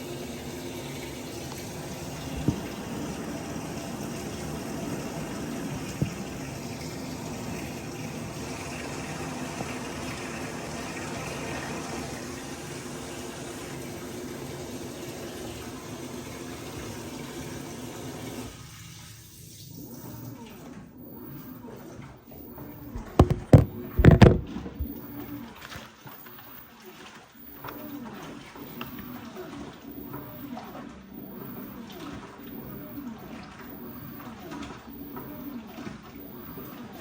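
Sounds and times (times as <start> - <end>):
water filling washing machine: 0.0 - 37.0
loud knocks: 22.9 - 25.0.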